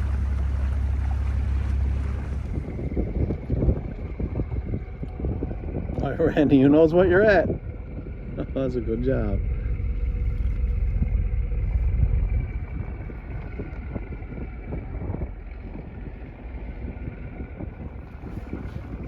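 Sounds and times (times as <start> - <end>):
boat engine rumble: 0.0 - 19.0
wind buffeting microphone: 0.0 - 19.0.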